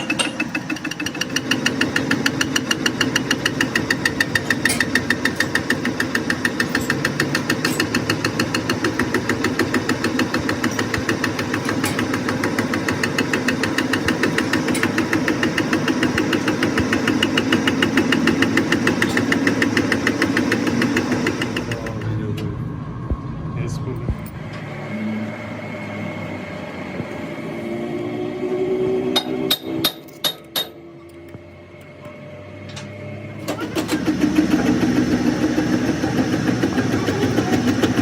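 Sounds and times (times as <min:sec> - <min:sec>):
lathe running with rapid knock: 0:00.0 - 0:22.0, 0:33.4 - 0:38.0.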